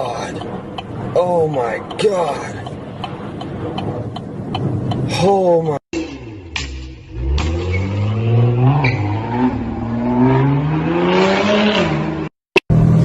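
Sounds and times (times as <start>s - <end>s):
car engine accelerating: 6.0s - 13.0s.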